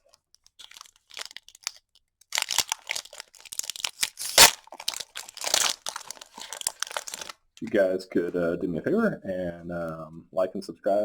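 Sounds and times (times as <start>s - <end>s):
foil packaging torn and crinkled: 0.5s - 7.4s.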